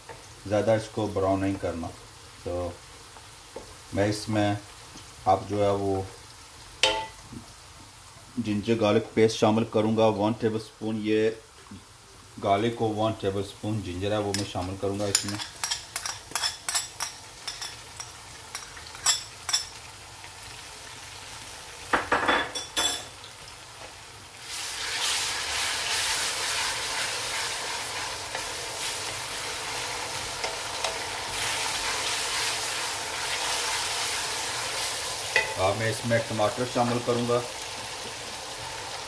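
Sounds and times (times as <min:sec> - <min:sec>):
loud steady sizzle in oil: 0:00.0 - 0:39.0
knocks on pan: 0:21.9 - 0:23.0.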